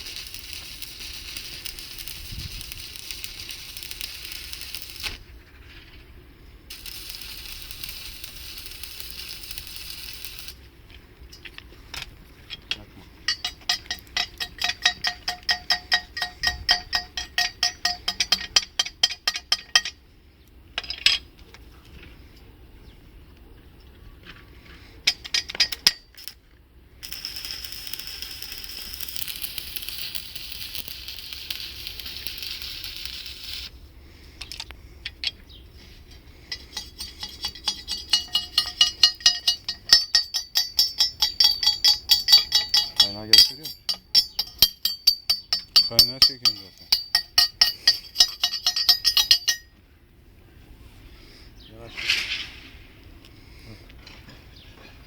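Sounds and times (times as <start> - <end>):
welding arc sizzling: 0.0 - 5.2, 6.7 - 10.6, 27.0 - 33.7, 36.5 - 49.6
ringing metal taps: 13.3 - 20.0, 36.5 - 49.8.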